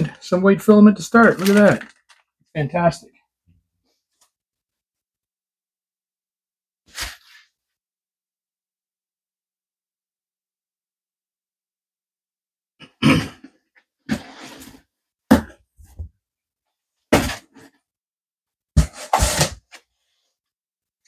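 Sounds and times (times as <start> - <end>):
packaging rustling: 1.1 - 2.3.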